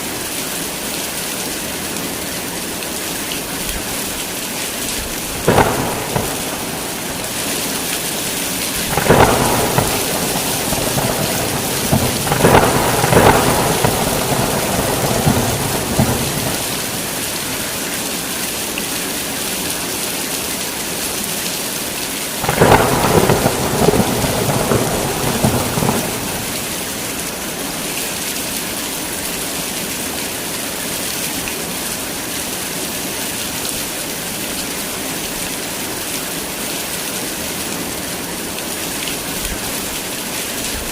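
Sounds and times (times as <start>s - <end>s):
heavy rain: 0.0s - 40.9s
thunder rumbling: 5.0s - 18.0s, 22.4s - 27.7s.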